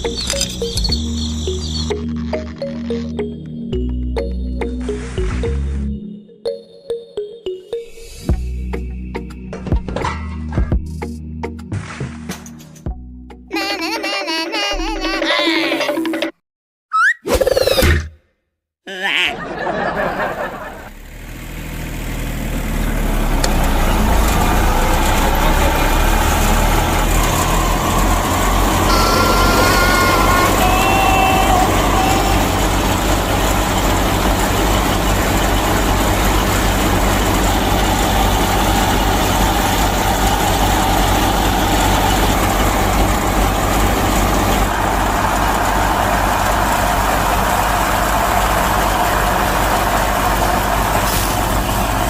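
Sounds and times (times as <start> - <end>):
large engine idling: 19.6 - 52.0
short high tones: 28.9 - 33.0.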